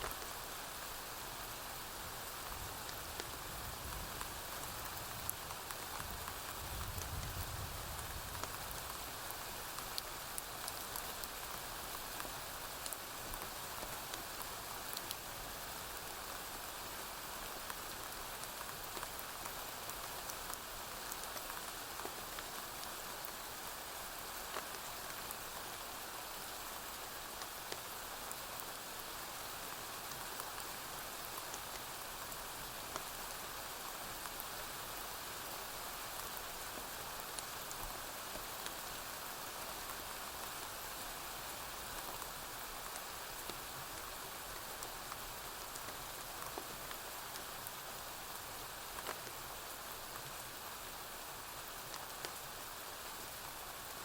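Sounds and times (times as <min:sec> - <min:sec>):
rain on a roof: 0:00.0 - 0:54.0.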